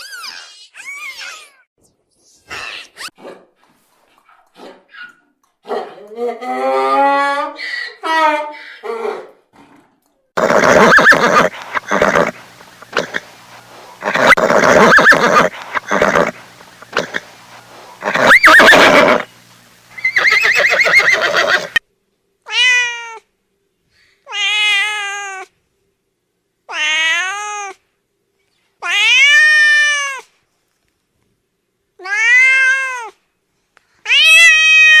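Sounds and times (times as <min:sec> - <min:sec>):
cat meowing: 0:14.0 - 0:16.3, 0:18.0 - 0:19.2, 0:28.8 - 0:30.2, 0:32.0 - 0:33.1, 0:34.1 - 0:35.0.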